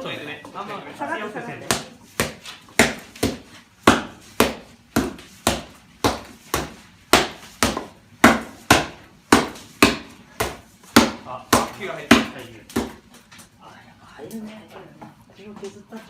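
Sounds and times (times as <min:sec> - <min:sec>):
wooden mallet thudding in mortar: 0:01.6 - 0:13.1.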